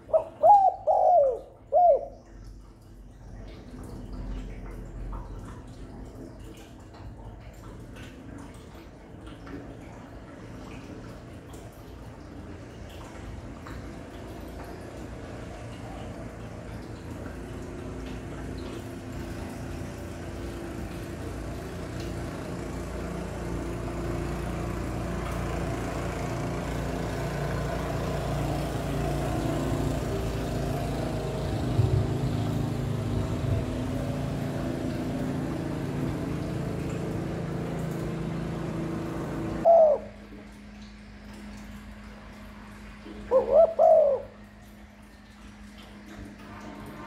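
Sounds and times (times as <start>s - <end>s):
dove cooing: 0.0s - 2.3s, 39.6s - 40.3s, 43.1s - 44.5s
low multi-tone hum: 0.0s - 47.0s.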